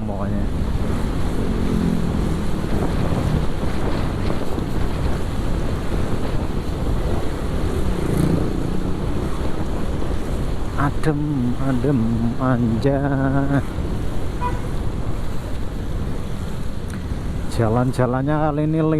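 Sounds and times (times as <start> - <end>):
road traffic: 0.0 - 18.9
wind rushing over microphone: 0.0 - 18.9
motorcycle engine: 0.4 - 10.8.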